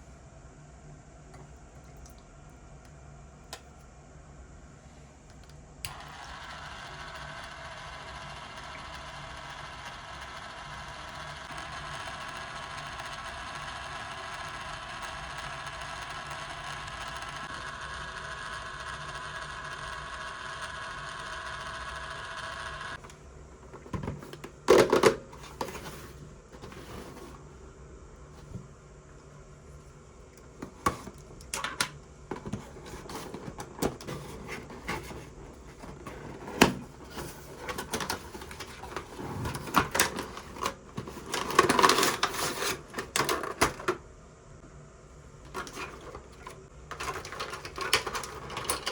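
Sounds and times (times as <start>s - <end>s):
small motor whirring: 5.9s - 23.0s.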